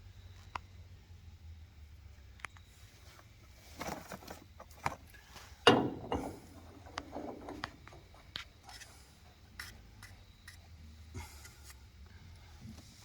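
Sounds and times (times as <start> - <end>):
pipe fittings and tools clicking: 5.1 - 8.9.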